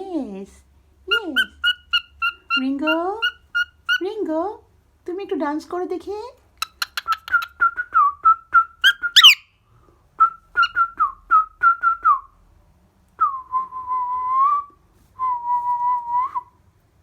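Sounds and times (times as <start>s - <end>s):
cockatiel whistling: 6.6s - 9.5s, 10.3s - 11.0s.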